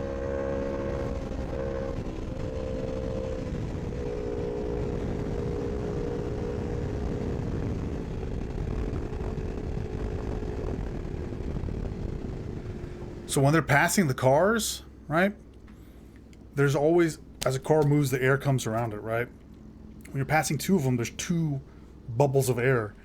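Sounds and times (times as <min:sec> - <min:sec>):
motorbike engine running hard: 0:00.0 - 0:13.3
wind noise: 0:00.0 - 0:13.3.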